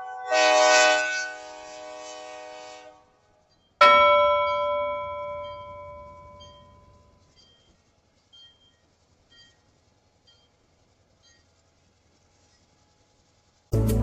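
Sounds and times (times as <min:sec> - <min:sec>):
bell strike ringing: 0:03.8 - 0:07.7
held musical chord: 0:13.7 - 0:14.0.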